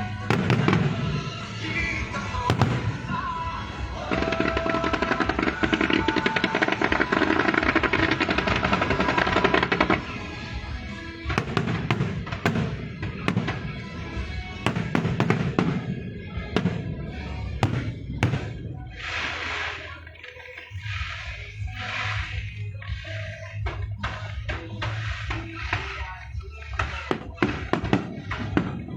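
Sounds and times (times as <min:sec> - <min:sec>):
fireworks bangs: 0:00.0 - 0:20.0, 0:26.7 - 0:28.9
fireworks crackling: 0:00.0 - 0:28.9.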